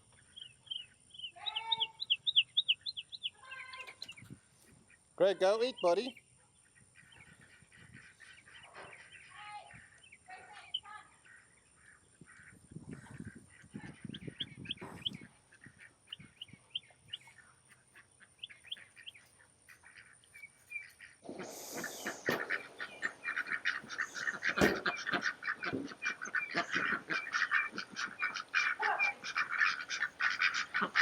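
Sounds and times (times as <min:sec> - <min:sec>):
poultry chirping: 0:00.0 - 0:31.0
waterfowl rapid calls: 0:17.7 - 0:31.0.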